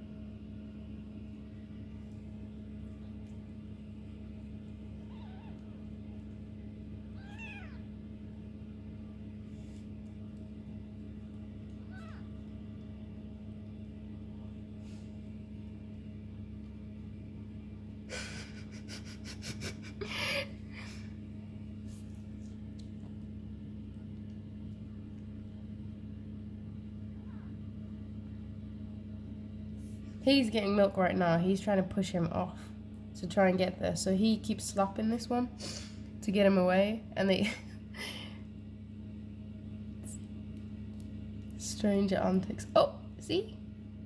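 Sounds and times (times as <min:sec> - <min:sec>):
steady low hum: 0:00.0 - 0:44.0
kittens mewing: 0:04.9 - 0:06.0, 0:07.1 - 0:07.9, 0:11.7 - 0:12.5.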